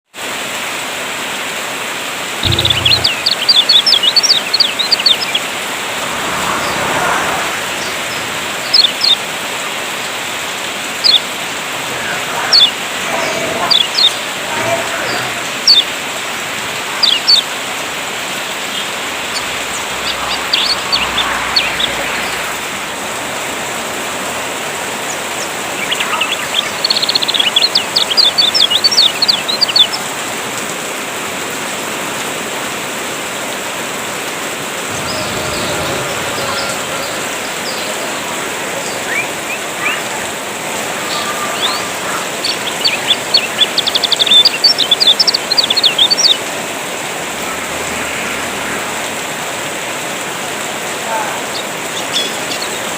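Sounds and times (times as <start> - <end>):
rain water hiss: 0.2 - 52.9
songbird chirps and trills: 2.4 - 5.8.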